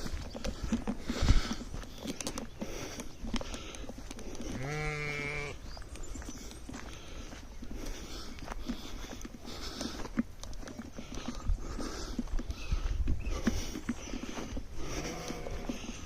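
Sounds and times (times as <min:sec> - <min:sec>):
goat or lamb bleating: 0:04.6 - 0:05.6, 0:14.8 - 0:15.8.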